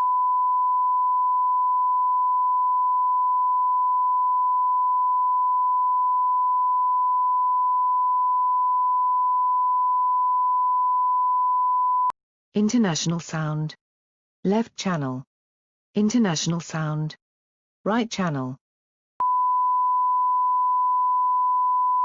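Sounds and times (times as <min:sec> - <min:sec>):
sine test tone: 0:00.0 - 0:12.1, 0:19.2 - 0:22.0.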